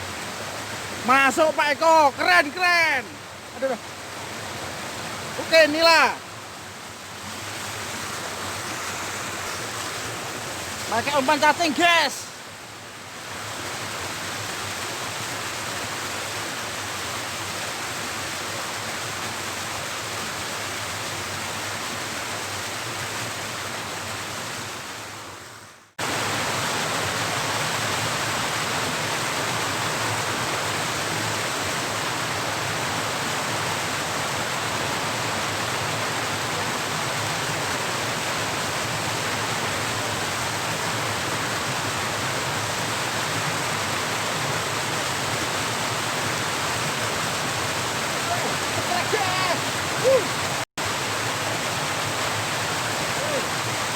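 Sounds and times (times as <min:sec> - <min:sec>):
river water rushing: 0:00.0 - 0:53.9.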